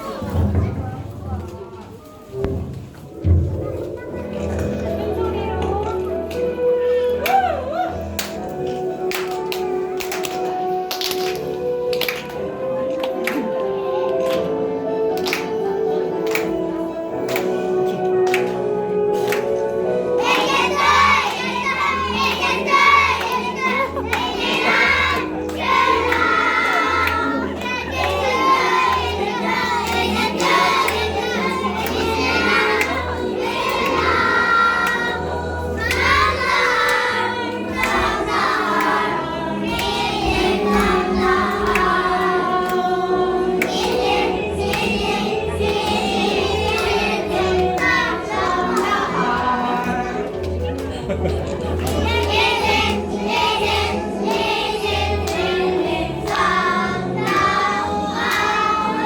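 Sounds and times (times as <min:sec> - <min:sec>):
backing music: 0:00.0 - 0:59.0
children singing together: 0:12.7 - 0:59.0.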